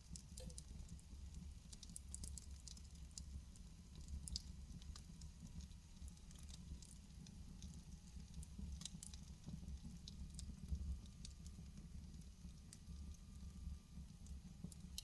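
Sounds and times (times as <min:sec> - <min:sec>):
logs crackling and popping: 0:03.9 - 0:13.4.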